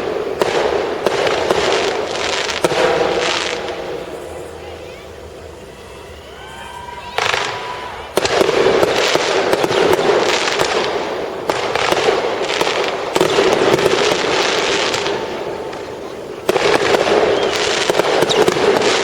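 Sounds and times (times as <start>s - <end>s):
fireworks bursting and crackling: 0.0s - 19.0s.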